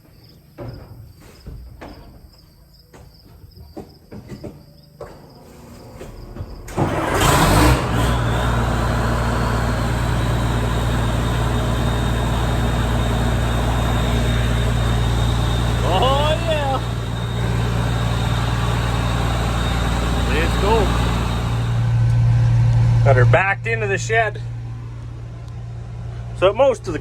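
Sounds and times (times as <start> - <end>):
diesel engine idling: 5.4 - 27.0
starter motor cranking: 5.6 - 23.2.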